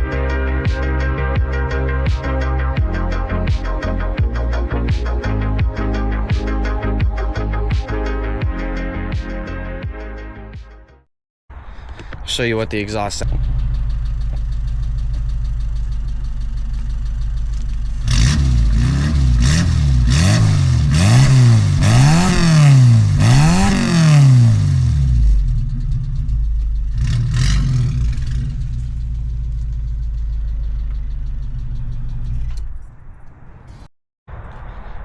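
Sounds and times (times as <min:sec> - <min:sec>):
car engine idling and revving: 0:13.2 - 0:33.9.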